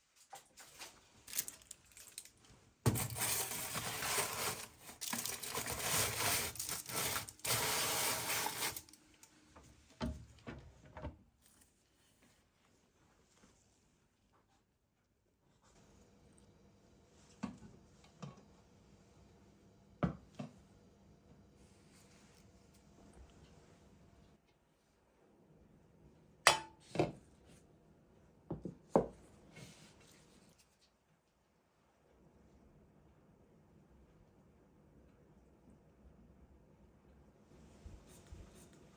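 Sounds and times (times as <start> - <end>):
rough scraping in short strokes: 5.5 - 8.8
dishes knocking and clinking: 26.5 - 27.2.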